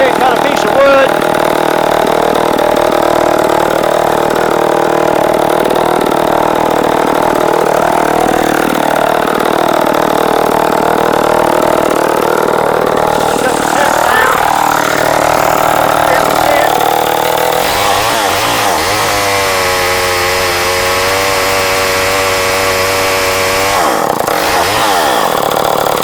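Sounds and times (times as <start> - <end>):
chainsaw engine running: 0.0 - 26.0.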